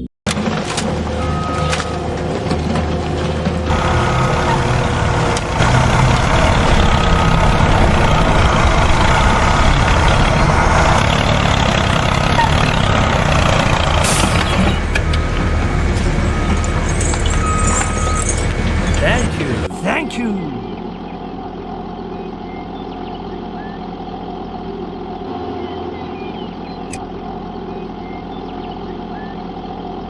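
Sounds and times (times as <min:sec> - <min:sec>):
truck engine rumbling: 0:00.0 - 0:22.0.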